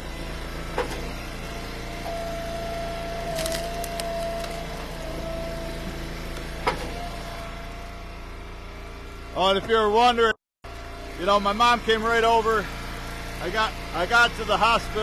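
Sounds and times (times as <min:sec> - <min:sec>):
hydraulic wood splitter running: 0:00.0 - 0:15.0
firewood cracking and splitting: 0:03.2 - 0:05.0.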